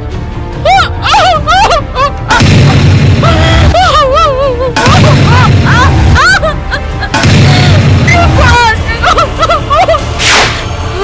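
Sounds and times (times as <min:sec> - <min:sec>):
booming low drum hits: 0:07.2 - 0:08.4.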